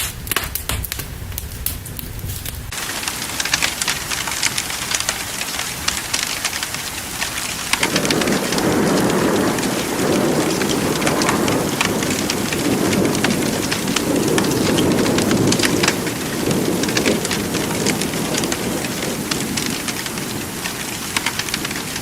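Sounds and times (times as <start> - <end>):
sharp crackles: 0.0 - 22.0
steady rain: 0.0 - 22.0
rolling thunder: 7.6 - 22.0.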